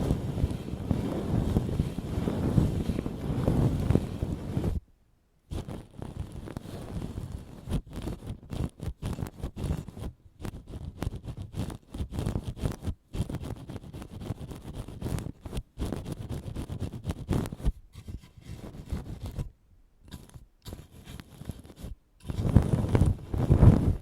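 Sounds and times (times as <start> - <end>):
ear pick scraping: 0.0 - 4.8, 5.5 - 24.0.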